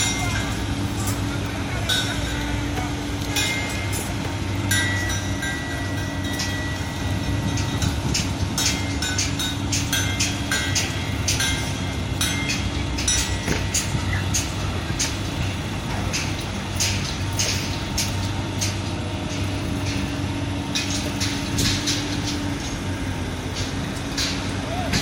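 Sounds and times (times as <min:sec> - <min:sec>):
diesel construction machinery running: 0:00.0 - 0:25.0
metallic clanks and clicks: 0:00.0 - 0:25.0.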